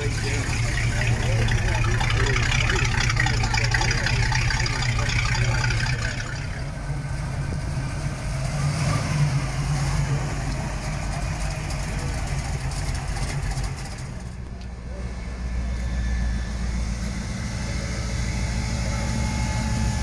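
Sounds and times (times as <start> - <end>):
car engine idling: 0.0 - 8.7, 9.4 - 20.0.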